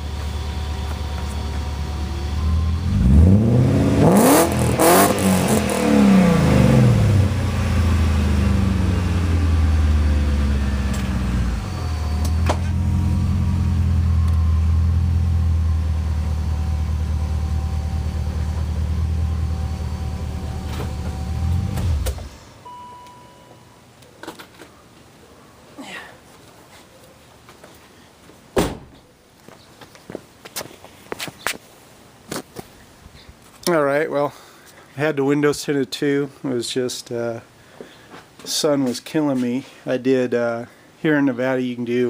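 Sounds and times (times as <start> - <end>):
car engine revving and idling: 0.0 - 22.5.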